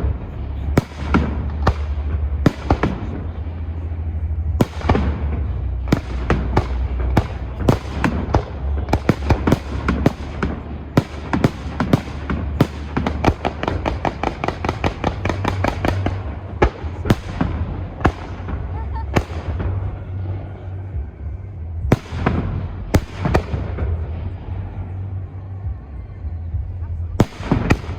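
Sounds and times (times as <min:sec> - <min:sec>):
low rumble: 0:00.0 - 0:27.9.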